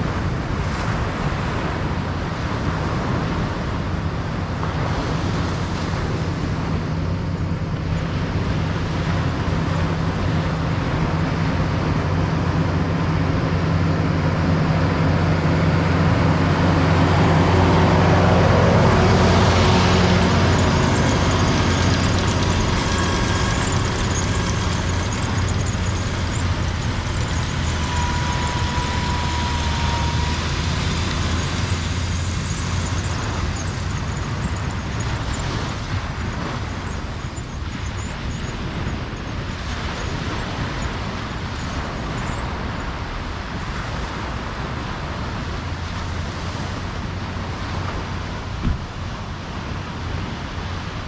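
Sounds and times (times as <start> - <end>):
ocean surf on a beach: 0.0 - 51.0
low hum: 7.0 - 40.8.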